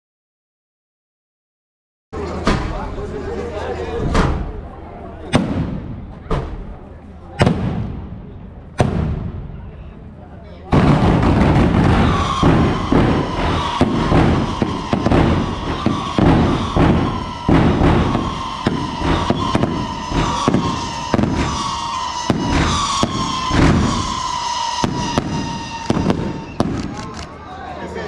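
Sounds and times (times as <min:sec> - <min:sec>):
fireworks bangs: 0:05.2 - 0:09.9, 0:10.7 - 0:27.5
shrill falling whistle: 0:11.8 - 0:26.8.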